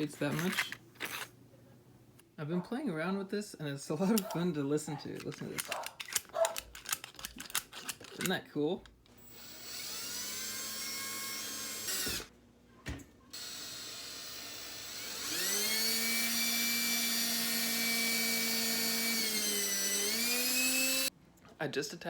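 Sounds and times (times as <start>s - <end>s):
electric drill motor whining: 9.1s - 12.3s, 13.4s - 21.1s.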